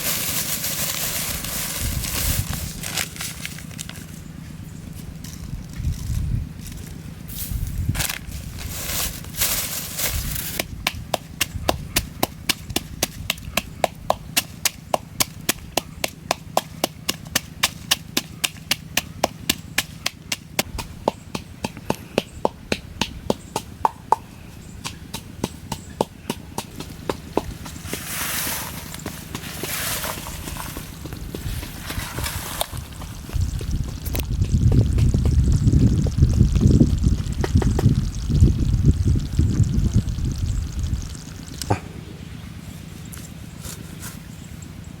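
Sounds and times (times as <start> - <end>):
rustling hiss: 0.0 - 13.8, 23.2 - 34.4.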